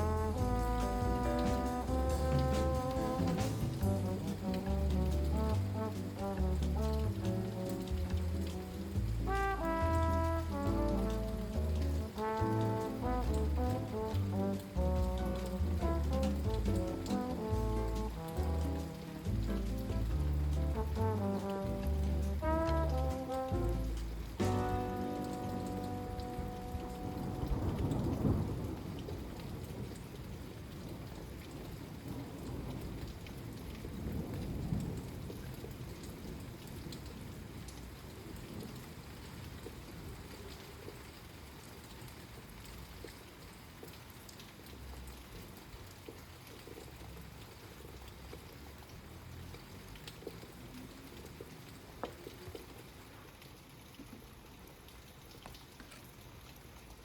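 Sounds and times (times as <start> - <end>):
thunder rumbling: 0.0 - 37.5
steady rainfall: 0.0 - 57.0.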